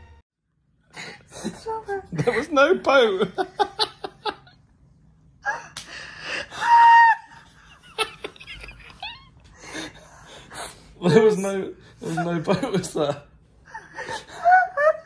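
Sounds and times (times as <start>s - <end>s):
man and woman laughing: 1.3s - 4.6s, 6.3s - 10.0s, 12.0s - 15.0s.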